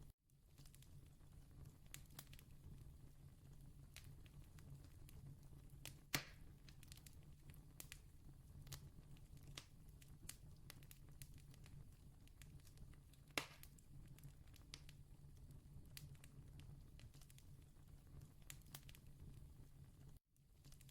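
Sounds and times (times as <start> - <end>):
campfire crackling: 3.8 - 19.2
fire pops: 5.8 - 15.0.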